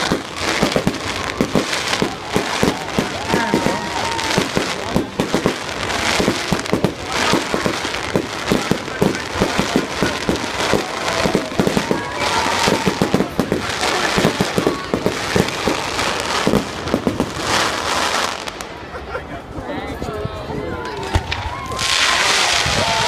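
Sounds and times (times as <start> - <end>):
fireworks bangs and crackles: 0.0 - 19.7, 20.4 - 23.0.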